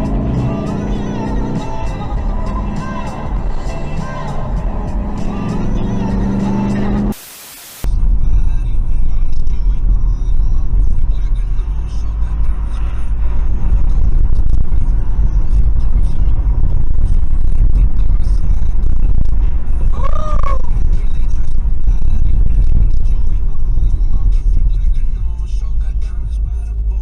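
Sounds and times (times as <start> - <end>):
car driving rumble: 0.0 - 7.2, 7.8 - 27.0
rising and falling tone: 0.0 - 7.8.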